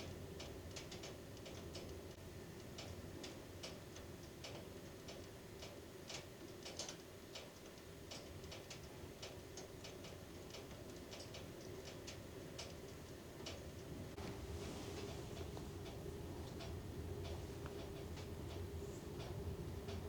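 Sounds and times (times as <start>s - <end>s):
light clicks and ticks: 0.0s - 14.4s, 15.0s - 20.0s
low steady hum: 7.2s - 20.0s.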